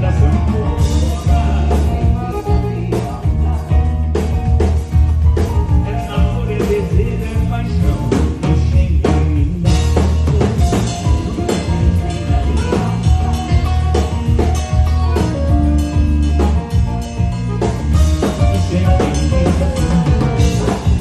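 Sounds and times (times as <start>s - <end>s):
drum hits: 0.0s - 21.0s
heavy bass line: 0.0s - 21.0s
live band playing: 0.0s - 21.0s.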